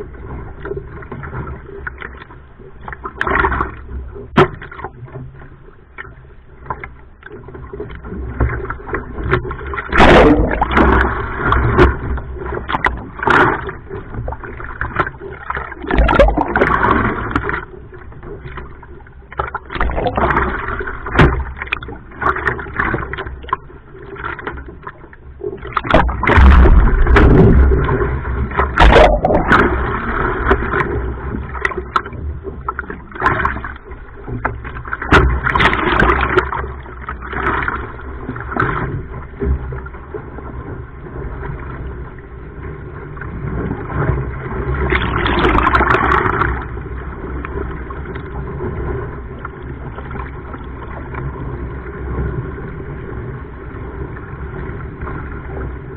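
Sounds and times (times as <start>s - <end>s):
sea water sloshing and splashing: 0.0s - 55.9s
wind rumbling on microphone: 25.6s - 55.9s.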